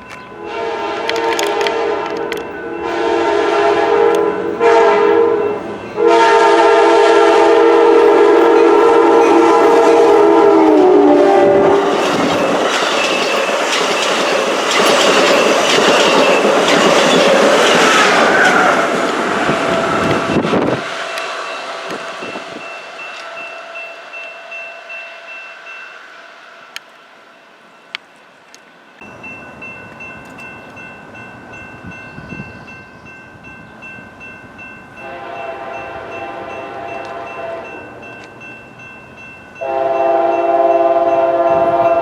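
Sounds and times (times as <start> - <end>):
train passing with rush and clatter: 0.0 - 42.0
train horn blasts: 0.3 - 12.1, 35.0 - 37.9, 39.6 - 42.0.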